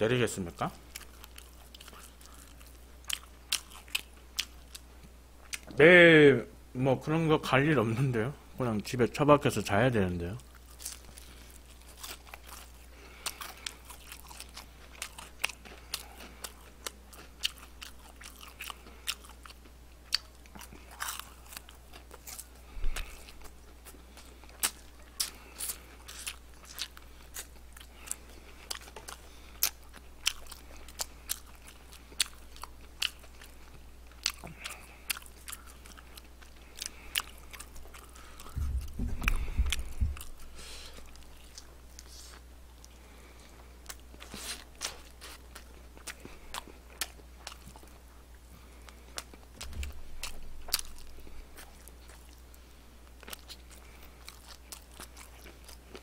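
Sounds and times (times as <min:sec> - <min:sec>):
crunchy chewing of fried chicken: 0:00.1 - 0:05.7, 0:09.3 - 0:56.0
low bumping noise: 0:38.5 - 0:40.4.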